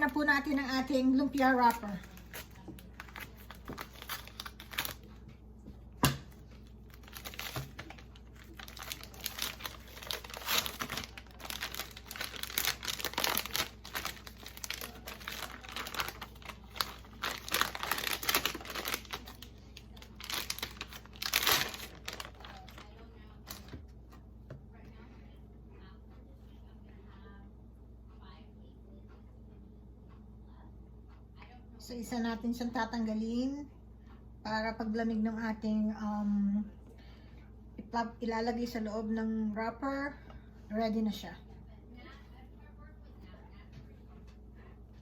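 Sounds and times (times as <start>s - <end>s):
packaging crinkling and tearing: 1.4s - 5.2s, 6.6s - 22.9s, 23.5s - 23.8s.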